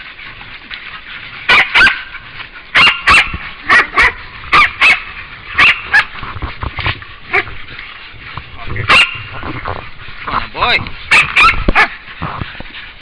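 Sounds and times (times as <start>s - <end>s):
dog barking loudly: 1.5s - 6.2s, 7.3s - 7.6s, 8.8s - 9.5s, 10.3s - 12.1s.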